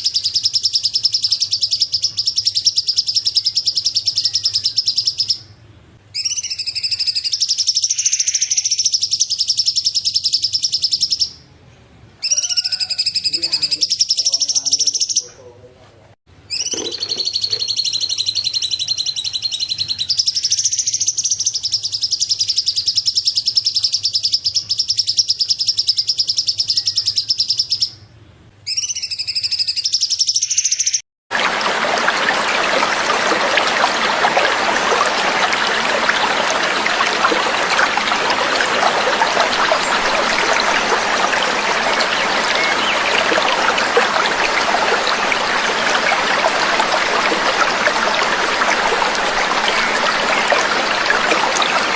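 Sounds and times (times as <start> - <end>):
songbird trilling: 16.5 - 19.6, 34.0 - 45.8
trickling water: 16.6 - 18.5, 31.3 - 51.9.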